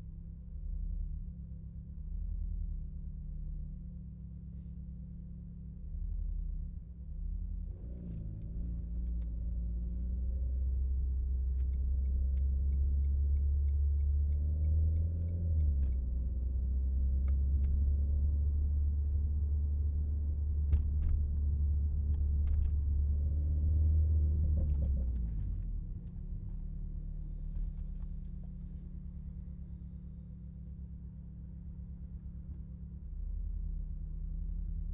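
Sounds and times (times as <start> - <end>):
car engine driving under load: 8.0 - 34.9.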